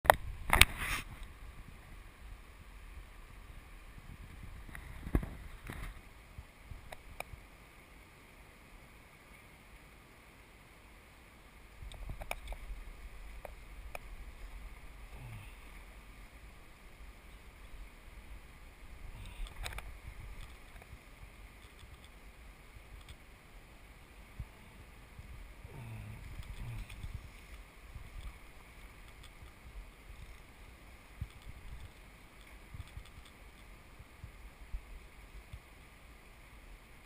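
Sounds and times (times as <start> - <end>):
river water rushing: 0.2 - 37.0
low rumble on microphone: 24.2 - 29.0.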